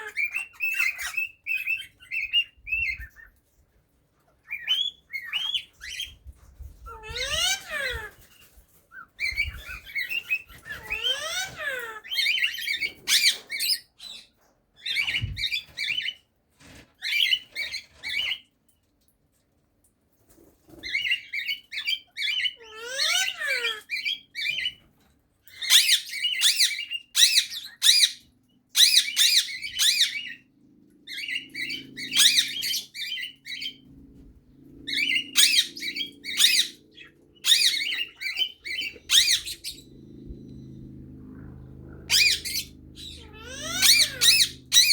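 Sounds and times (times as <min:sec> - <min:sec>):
cockatiel singing: 0:25.5 - 0:30.4, 0:31.1 - 0:33.8, 0:34.9 - 0:40.8, 0:42.0 - 0:44.9.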